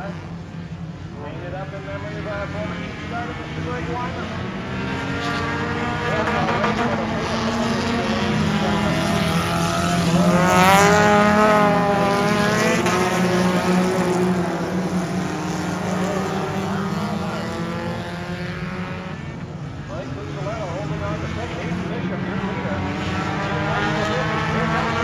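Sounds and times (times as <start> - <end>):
race car engines passing: 0.0 - 25.0.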